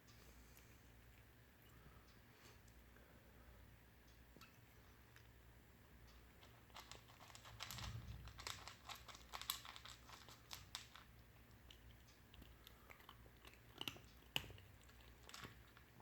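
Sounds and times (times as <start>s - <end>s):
cat crunching dry food: 6.2s - 16.0s.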